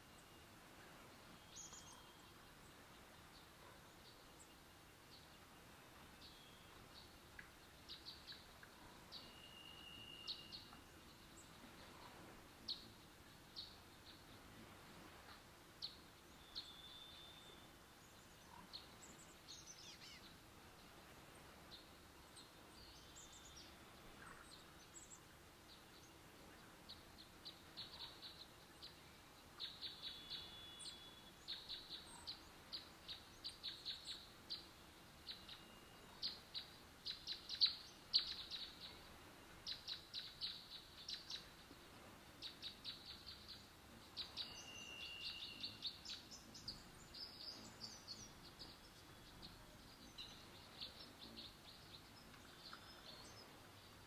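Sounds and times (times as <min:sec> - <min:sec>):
quiet woodland ambience: 0:00.0 - 0:54.0
thin whistled bird notes: 0:01.3 - 0:02.5, 0:06.1 - 0:13.0, 0:15.3 - 0:20.3, 0:26.9 - 0:41.6, 0:42.4 - 0:54.0.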